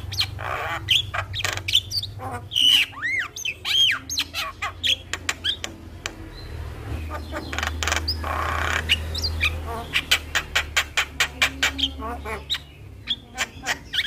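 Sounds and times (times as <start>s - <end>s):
harsh rasping bird squawk: 0.0s - 5.6s, 7.1s - 14.0s
bird song clicks and whistles: 4.9s - 6.2s.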